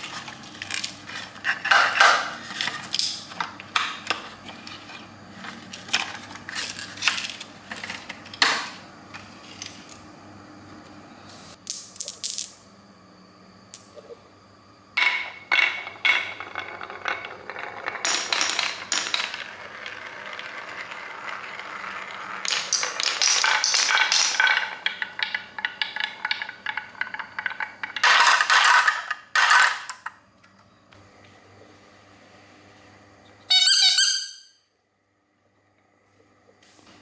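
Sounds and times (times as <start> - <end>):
marbles clattering down plastic track: 15.0 - 30.1.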